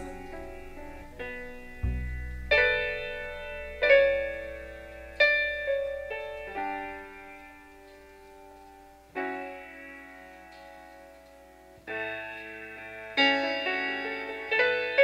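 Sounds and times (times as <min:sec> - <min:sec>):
low held bass note: 0:00.0 - 0:07.4
piano chords ringing: 0:00.0 - 0:15.0.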